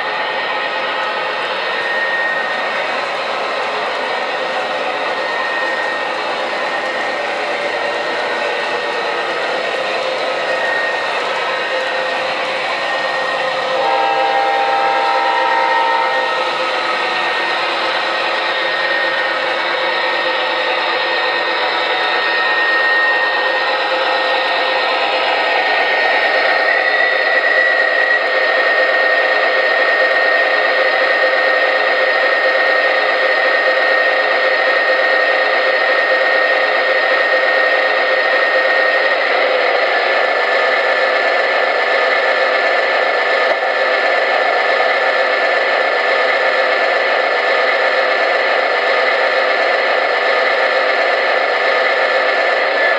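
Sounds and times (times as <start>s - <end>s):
model locomotive diesel engine sound: 0.0s - 52.9s
chord of steady tones: 9.0s - 23.8s.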